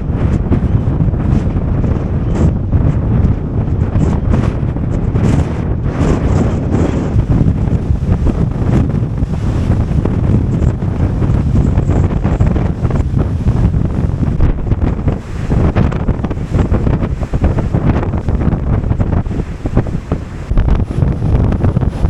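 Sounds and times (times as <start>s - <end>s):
rough surf: 0.0s - 22.0s
wind buffeting microphone: 0.0s - 22.0s.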